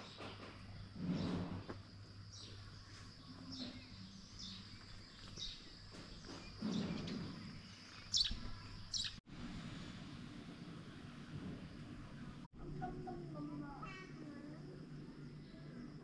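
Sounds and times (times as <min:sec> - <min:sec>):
bird chirping: 0:02.3 - 0:09.2.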